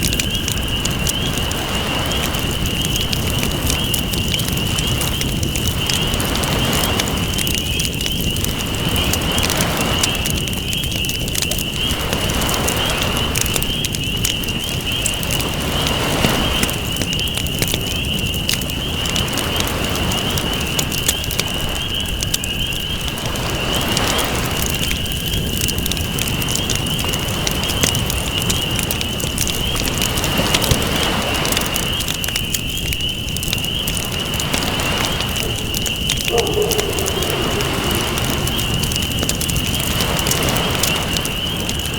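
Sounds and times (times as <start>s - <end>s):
campfire crackling and popping: 0.0s - 41.9s
waves washing in: 33.9s - 41.5s.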